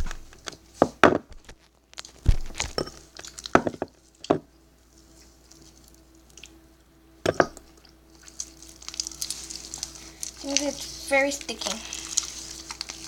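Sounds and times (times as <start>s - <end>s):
slime squelching: 2.0s - 4.3s, 4.9s - 6.6s, 7.5s - 13.0s.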